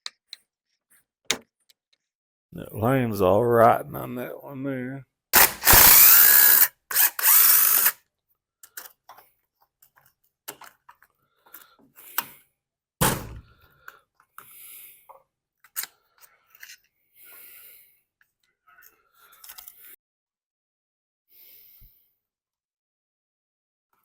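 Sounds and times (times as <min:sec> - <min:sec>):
cordless drill motor whine: 0:05.4 - 0:08.0.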